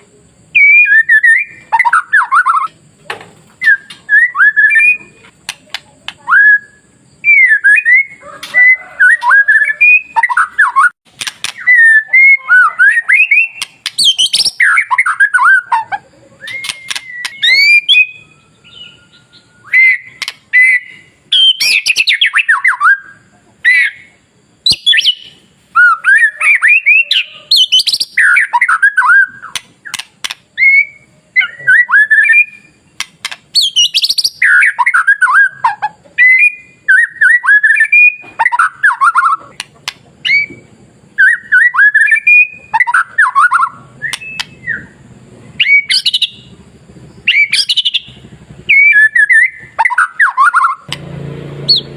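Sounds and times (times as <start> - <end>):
bird singing whistled notes: 0.4 - 2.8, 3.5 - 39.6, 40.2 - 51.0, 51.6 - 51.9
sharp bird clicks: 1.9 - 6.3, 11.1 - 11.8, 13.3 - 15.2, 16.4 - 18.1, 20.0 - 20.6, 27.5 - 30.6, 32.9 - 34.6, 38.0 - 40.6, 42.8 - 44.8.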